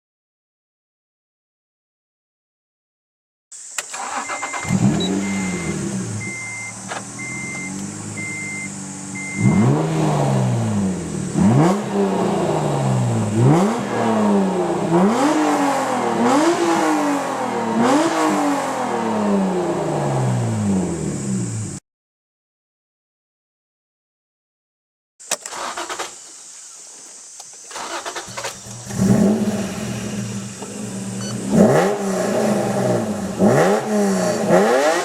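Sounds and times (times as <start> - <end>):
car engine revving: 3.8 - 21.8, 27.7 - 35.0
repeating beep: 4.2 - 9.6.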